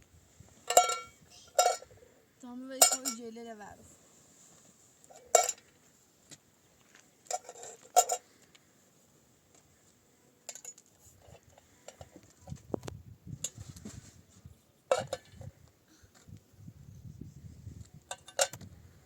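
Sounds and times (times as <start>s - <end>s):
dishes and utensils clinking: 0.7s - 1.8s, 2.8s - 3.2s.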